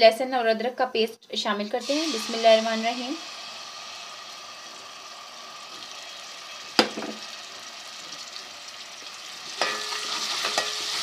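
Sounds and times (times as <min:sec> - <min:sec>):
paste sizzling in a pan: 0:01.8 - 0:11.0
utensil knocking on pan: 0:06.8 - 0:07.3.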